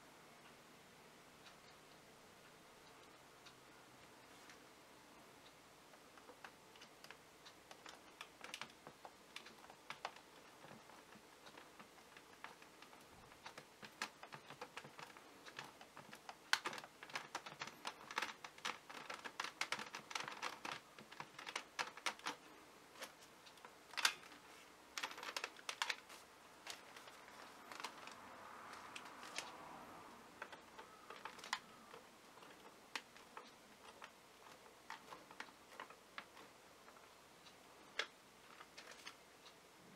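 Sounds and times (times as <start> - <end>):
screwdriver clicking on plastic: 6.2 - 24.4, 25.0 - 29.6, 30.3 - 37.1.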